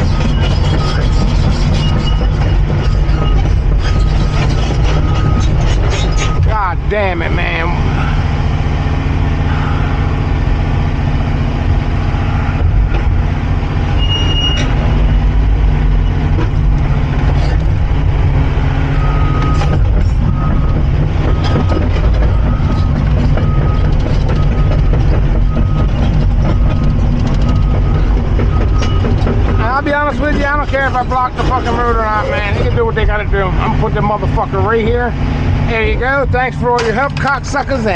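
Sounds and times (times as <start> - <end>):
knocks and clanks: 0.0 - 8.2, 11.6 - 35.3, 35.9 - 37.9
excavator diesel engine running: 0.0 - 37.9
travel alarm beeping: 14.0 - 15.1, 18.9 - 21.7, 22.3 - 29.8.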